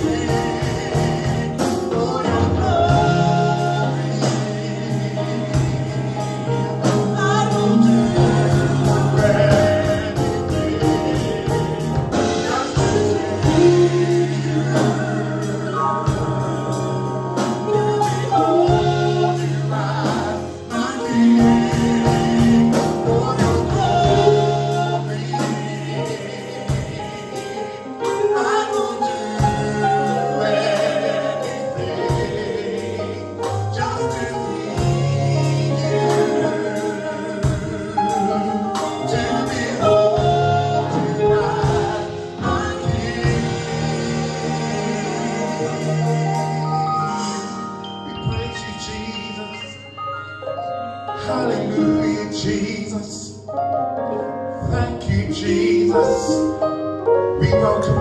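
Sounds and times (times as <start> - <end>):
people singing: 0.0 - 50.0, 51.1 - 53.5, 54.5 - 58.0
gospel band playing: 0.0 - 58.0.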